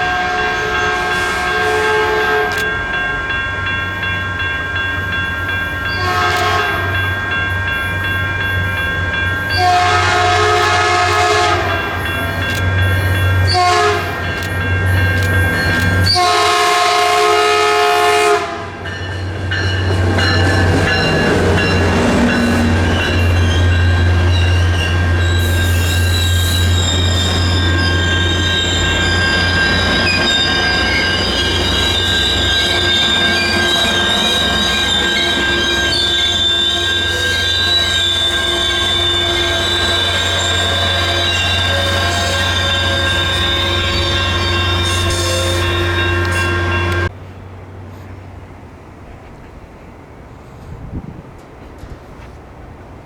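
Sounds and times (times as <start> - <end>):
locomotive horn: 0.0 - 2.9, 6.0 - 7.2, 9.5 - 18.8, 21.8 - 47.1
locomotive engine drone: 0.0 - 17.0, 19.2 - 49.0
train wheels on rails: 0.0 - 53.0
high wheel squeal: 20.9 - 47.1.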